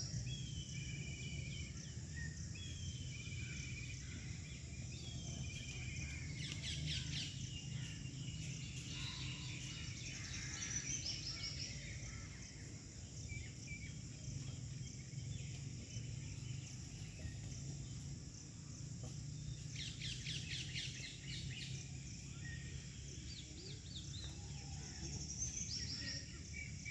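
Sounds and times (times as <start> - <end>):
birds chirping: 0.0 - 26.9.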